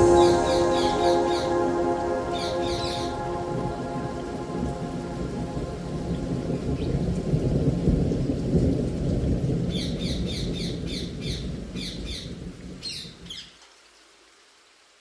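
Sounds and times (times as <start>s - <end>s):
rain: 0.0s - 15.0s
low rumble of thunder: 2.8s - 13.4s.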